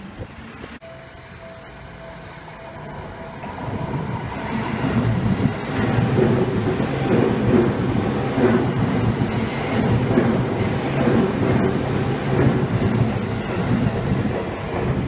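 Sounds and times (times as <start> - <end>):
heavy wheel noise pulses: 0.0 - 15.0
train passing rumble: 0.0 - 15.0
level crossing bell ringing: 0.8 - 4.5.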